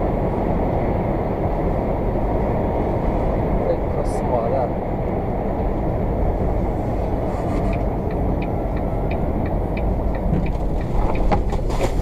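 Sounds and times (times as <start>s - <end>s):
vehicle road and engine noise: 0.0s - 12.0s
faint regular ticking: 7.7s - 11.3s.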